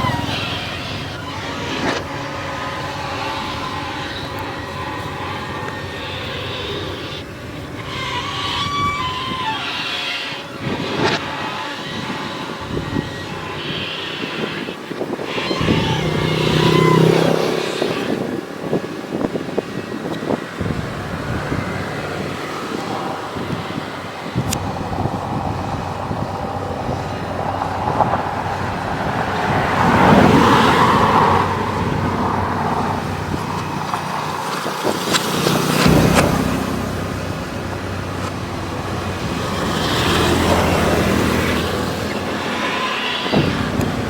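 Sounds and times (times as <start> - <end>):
excavator motor running: 0.0 - 44.0.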